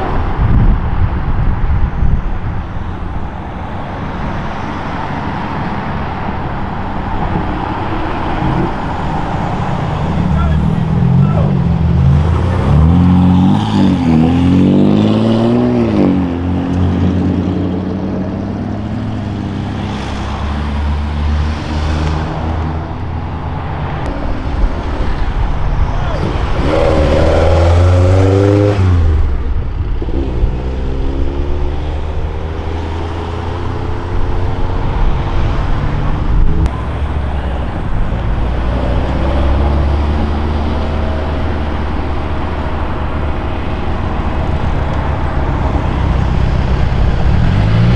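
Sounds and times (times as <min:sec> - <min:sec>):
car engines revving: 0:00.0 - 0:47.9.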